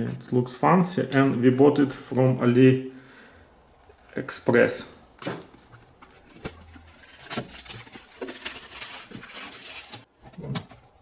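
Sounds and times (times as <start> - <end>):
packaging rustling and crinkling: 5.4 - 11.0.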